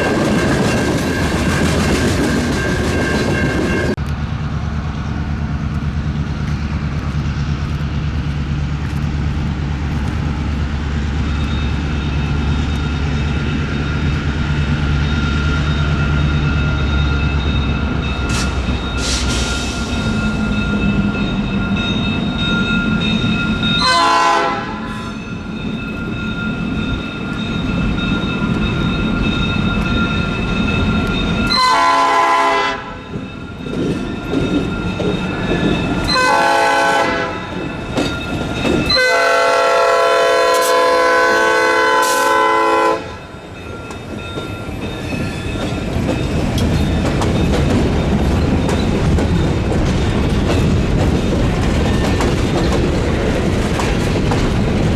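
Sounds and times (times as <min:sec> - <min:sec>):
freight train rumbling: 0:00.0 - 0:54.9
locomotive horn blasts: 0:23.8 - 0:25.1, 0:31.5 - 0:33.0, 0:36.1 - 0:37.6, 0:38.9 - 0:43.4
wheels clacking over rail joints: 0:33.1 - 0:40.8, 0:43.5 - 0:54.9.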